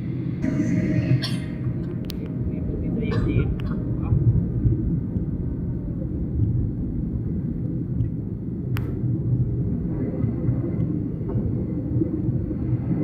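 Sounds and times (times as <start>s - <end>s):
jet airliner landing: 0.0s - 4.6s.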